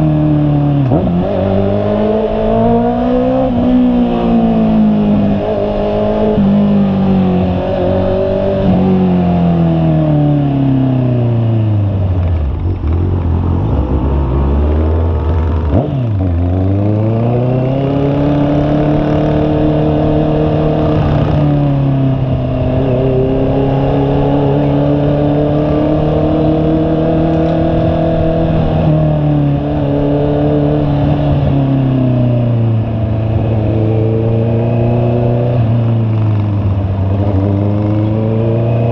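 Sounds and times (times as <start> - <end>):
motorcycle engine: 0.0 - 38.9.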